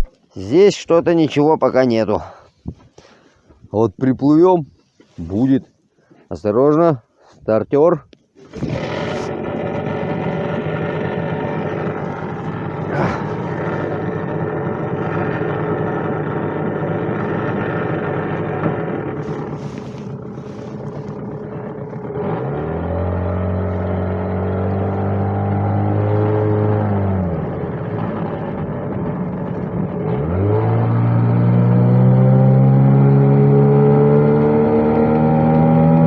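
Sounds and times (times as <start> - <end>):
outboard motor running: 8.4 - 36.0.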